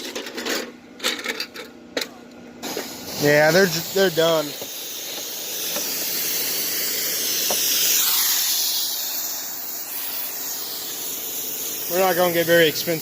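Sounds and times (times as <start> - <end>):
pressure washer jet hissing: 2.6 - 13.0.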